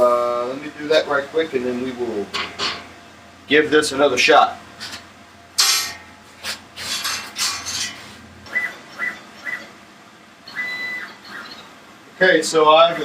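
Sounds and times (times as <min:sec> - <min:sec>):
longer beep: 0:10.5 - 0:11.6
short high electronic beeps: 0:10.5 - 0:11.7.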